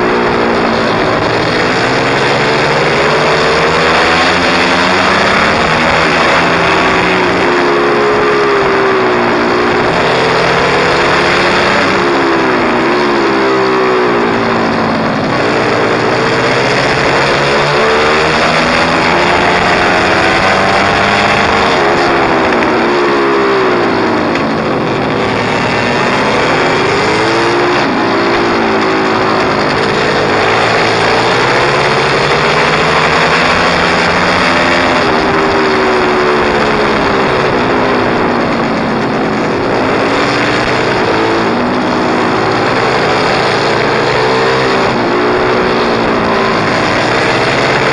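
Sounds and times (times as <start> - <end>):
pit bike engine revving: 0.0 - 47.9.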